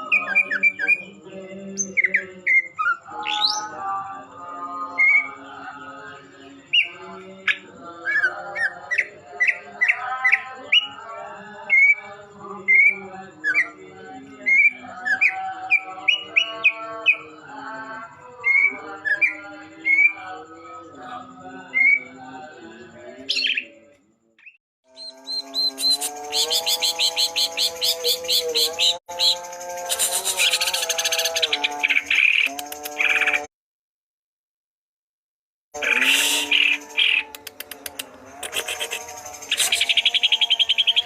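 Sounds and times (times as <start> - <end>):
bird chirping: 1.8 - 3.9, 14.5 - 17.3, 24.4 - 33.5, 35.8 - 41.0.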